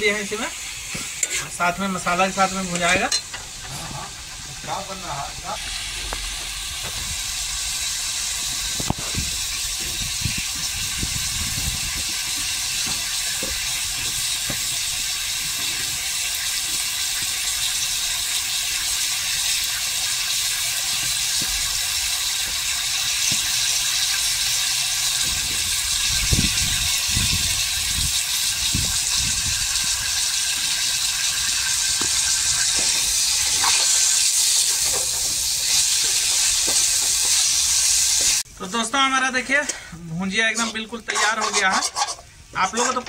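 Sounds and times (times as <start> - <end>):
vegetables sizzling in hot oil: 0.0 - 38.5.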